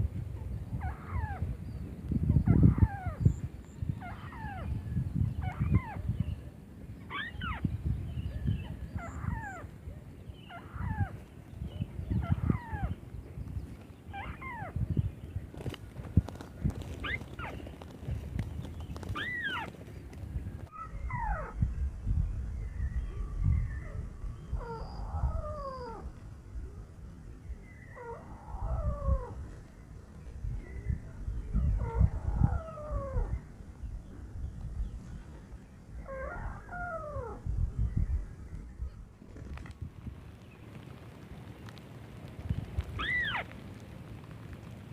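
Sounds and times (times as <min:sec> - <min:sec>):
crake calling: 0:43.0 - 0:43.6.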